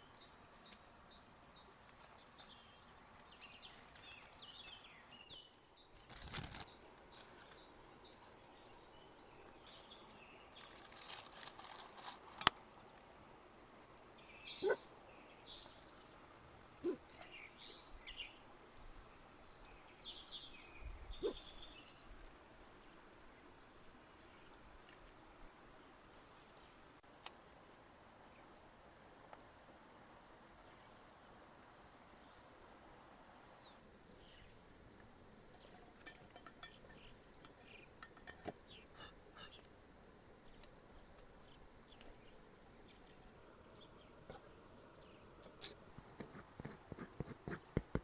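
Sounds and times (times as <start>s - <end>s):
birds chirping faintly: 0.0s - 13.6s, 30.6s - 48.0s.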